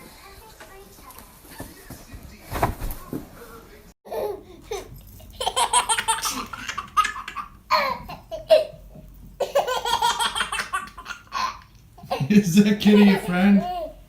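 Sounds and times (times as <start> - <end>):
baby laughing: 4.1 - 8.8, 9.4 - 14.0.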